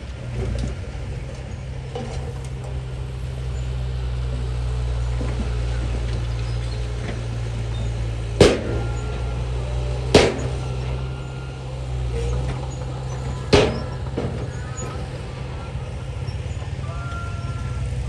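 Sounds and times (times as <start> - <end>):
diesel engine running: 0.0 - 18.0
sharp bangs: 8.2 - 11.1, 12.2 - 15.2.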